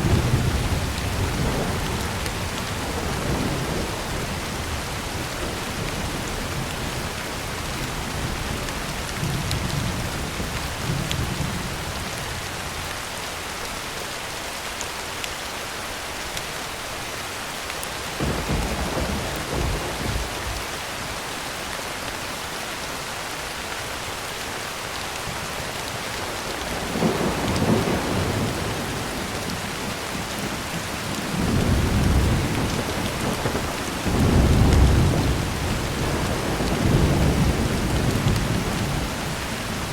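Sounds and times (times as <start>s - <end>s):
low thunder rumbling: 0.0s - 8.6s, 18.2s - 20.8s, 26.5s - 39.9s
heavy rain on a tin roof: 0.0s - 39.9s.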